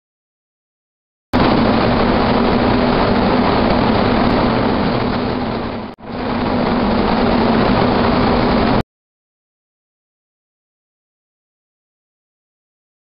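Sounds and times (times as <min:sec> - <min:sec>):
low hum: 0:01.4 - 0:08.8.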